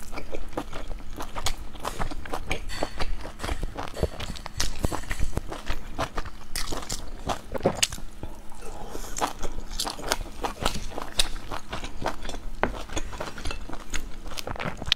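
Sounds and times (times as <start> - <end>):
person chewing food: 0.0 - 14.9.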